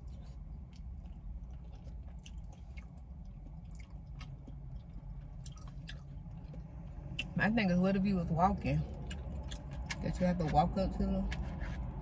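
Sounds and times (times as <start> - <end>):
chewing soft wet food: 0.0 - 7.4, 8.8 - 10.5
steady low hum: 0.0 - 12.0.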